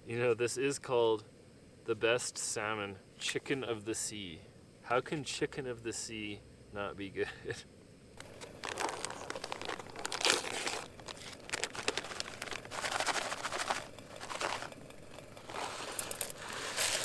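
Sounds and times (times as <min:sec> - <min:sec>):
food packaging rustling: 0:08.2 - 0:17.0.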